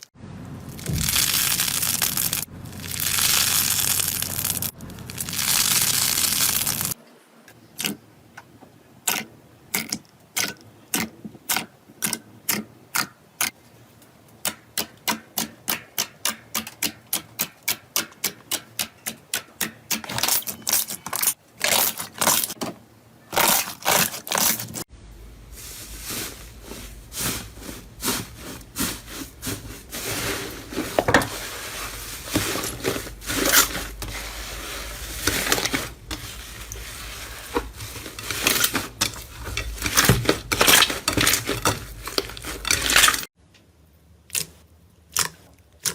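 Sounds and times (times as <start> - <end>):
rustling with crackles: 0.0 - 7.0, 25.5 - 43.3.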